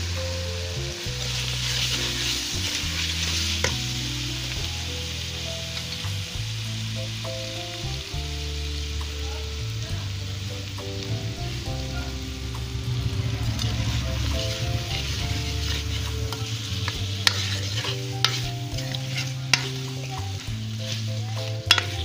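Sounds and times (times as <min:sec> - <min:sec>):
background music with held notes: 0:00.0 - 0:22.0
potatoes sizzling in oil: 0:00.0 - 0:22.0
steel ladle stirring in pan: 0:13.6 - 0:22.0.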